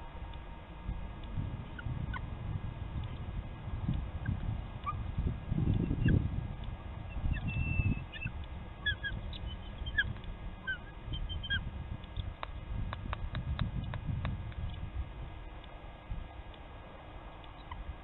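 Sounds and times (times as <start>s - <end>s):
low rumble: 0.0s - 18.0s
high bird chirps: 7.1s - 10.1s, 10.7s - 11.6s.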